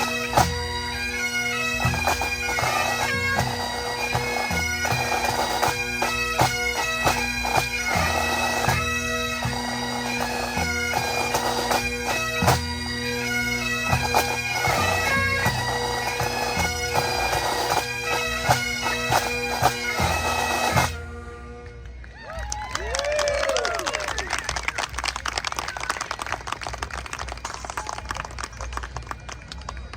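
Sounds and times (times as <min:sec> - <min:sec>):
bagpipes playing a march: 0:00.0 - 0:22.1.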